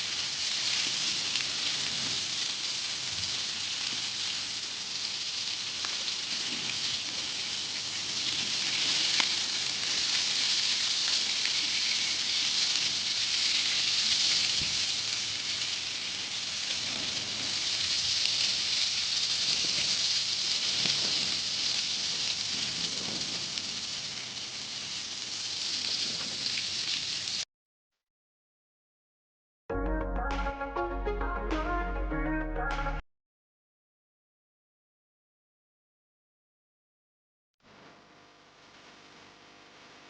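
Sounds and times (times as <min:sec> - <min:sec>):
fish sizzling in hot oil: 0:00.0 - 0:27.4.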